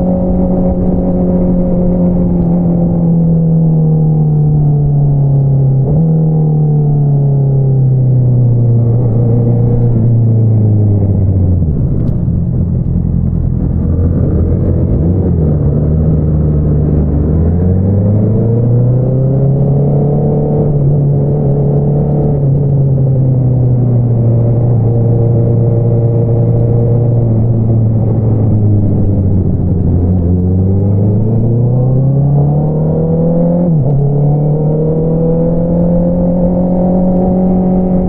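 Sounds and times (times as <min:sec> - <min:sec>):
motorcycle engine revving: 0:08.5 - 0:38.0.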